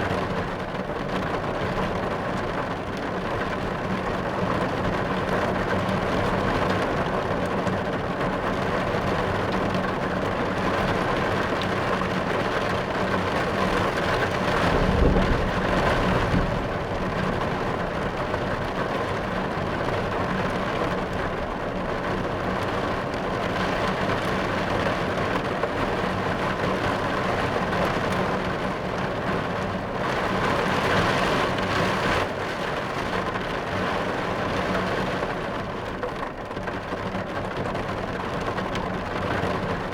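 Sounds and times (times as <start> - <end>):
heavy rain on car roof: 0.0 - 39.9
low rumble of thunder: 13.5 - 20.7.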